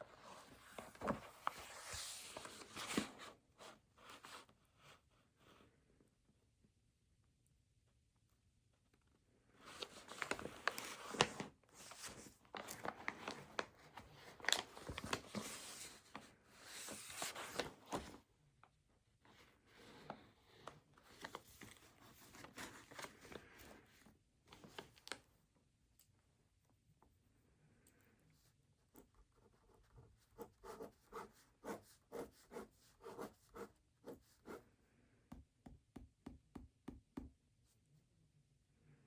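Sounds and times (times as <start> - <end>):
rustling and crinkling: 9.7 - 18.2.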